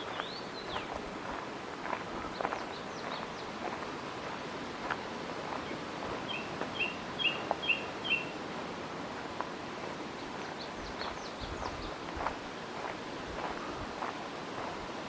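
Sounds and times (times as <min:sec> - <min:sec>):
faint outdoor hiss: 0:00.0 - 0:15.0
songbird whistling: 0:06.3 - 0:08.3.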